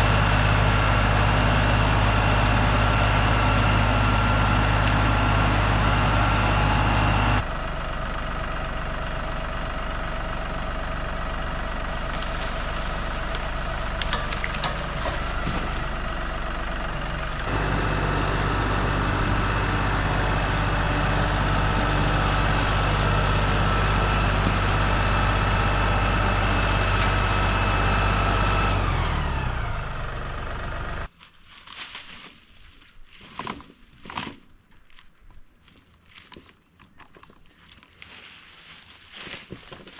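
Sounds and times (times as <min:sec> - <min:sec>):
tractor diesel engine running: 0:00.0 - 0:31.2.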